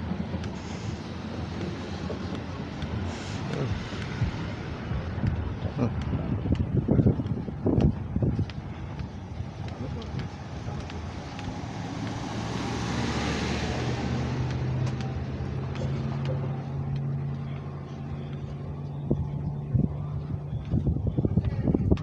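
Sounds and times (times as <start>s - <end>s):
low engine hum: 0.0s - 22.0s
car passing by: 9.6s - 18.2s.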